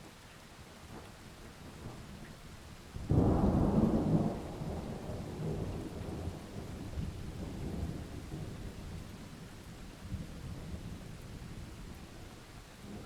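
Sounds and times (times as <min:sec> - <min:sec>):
steady rain: 0:00.0 - 0:13.0
thunderclap rolling rumble: 0:03.1 - 0:08.9.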